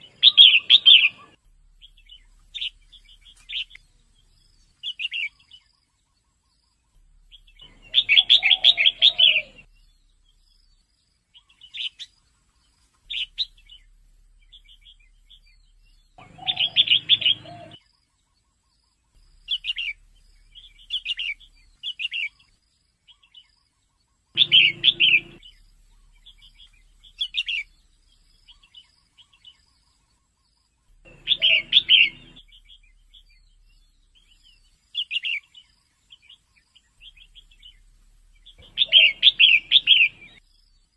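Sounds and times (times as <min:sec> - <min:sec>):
bird chirping and chattering: 0:06.9 - 0:10.7, 0:13.1 - 0:17.8, 0:19.1 - 0:22.4, 0:24.3 - 0:29.6, 0:30.8 - 0:35.6, 0:36.2 - 0:40.9.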